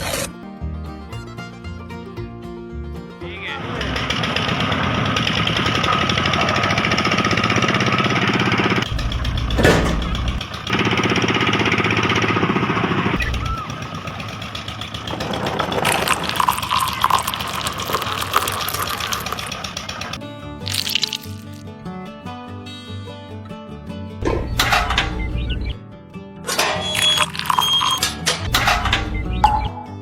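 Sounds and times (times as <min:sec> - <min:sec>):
rattling clicking clatter: 0:08.8 - 0:10.8
knock: 0:09.5 - 0:10.4.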